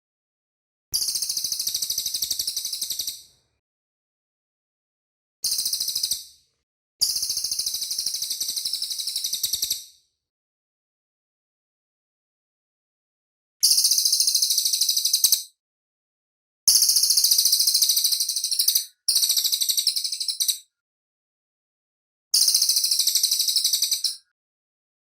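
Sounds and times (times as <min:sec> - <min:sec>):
bird singing rapid high trills: 0:16.8 - 0:20.6.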